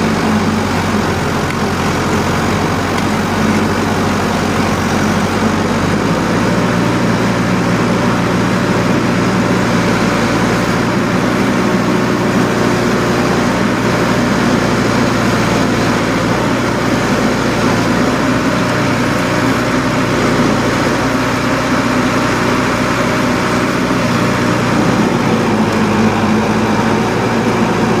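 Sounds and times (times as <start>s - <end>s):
heavy engine droning: 0.0s - 28.0s.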